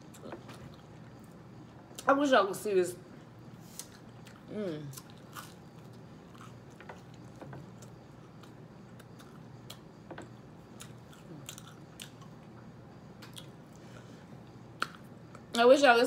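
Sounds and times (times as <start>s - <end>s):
person chewing food: 3.6s - 12.6s, 13.2s - 15.4s.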